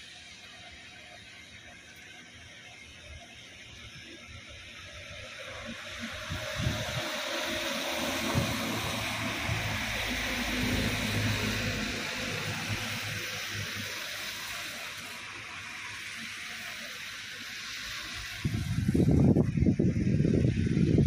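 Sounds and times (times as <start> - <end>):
low engine hum: 1.7 - 16.0
heavy rain falling: 5.2 - 19.2.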